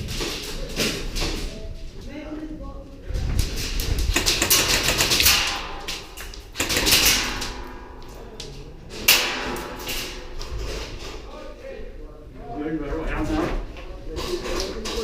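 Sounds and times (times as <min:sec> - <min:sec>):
airsoft guns firing clicks: 0:04.1 - 0:10.5
loud crack: 0:04.1 - 0:11.3.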